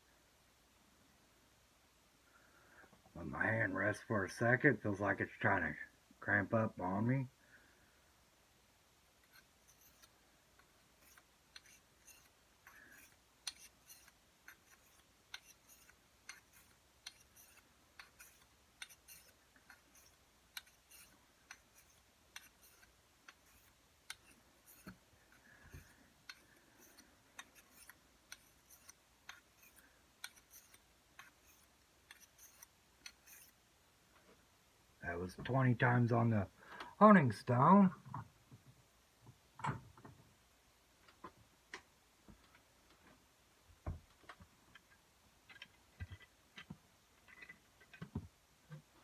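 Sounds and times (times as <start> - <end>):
blade stroked on honing stone: 9.2 - 33.6.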